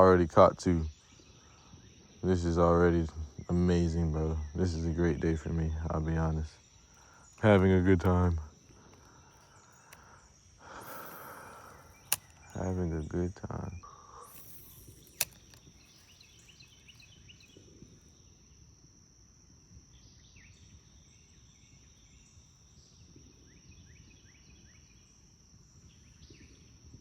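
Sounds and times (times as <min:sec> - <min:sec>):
high-pitched insect drone: 0:00.0 - 0:18.2
short falling bird chirps: 0:06.6 - 0:17.9
sharp click: 0:07.4 - 0:13.1, 0:13.7 - 0:17.1.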